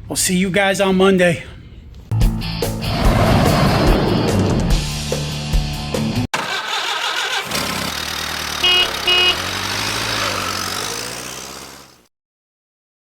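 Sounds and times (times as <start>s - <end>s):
vehicle running: 6.4s - 12.1s
horn honks: 8.2s - 10.9s.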